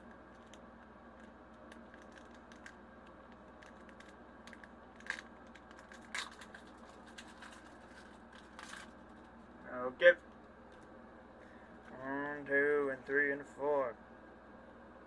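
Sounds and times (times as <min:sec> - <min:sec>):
foil wrapper crinkling: 0:00.0 - 0:09.6.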